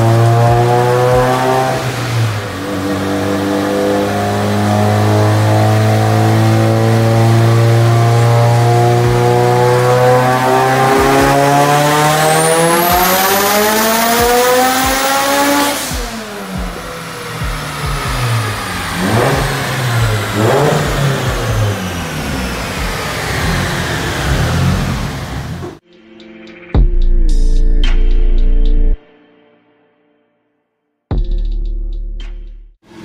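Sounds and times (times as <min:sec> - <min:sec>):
car engine revving on dyno: 0:00.0 - 0:25.8
high turbo whine: 0:00.0 - 0:26.0.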